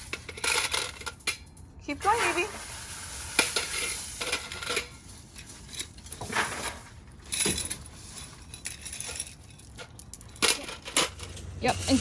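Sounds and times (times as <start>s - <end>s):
gravel scooped into bucket: 2.0s - 7.0s.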